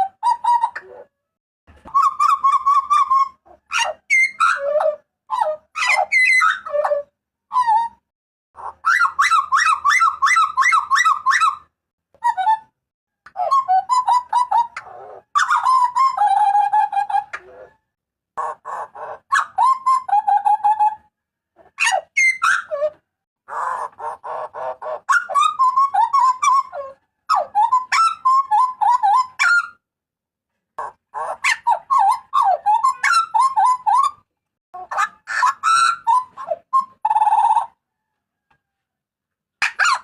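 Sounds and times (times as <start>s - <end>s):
bird calling: 34.8s - 38.0s.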